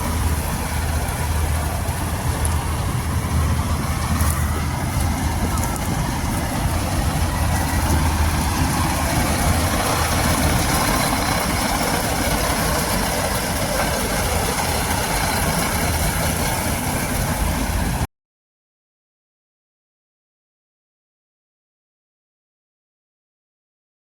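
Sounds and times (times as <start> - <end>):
combine harvester running: 0.0 - 18.1.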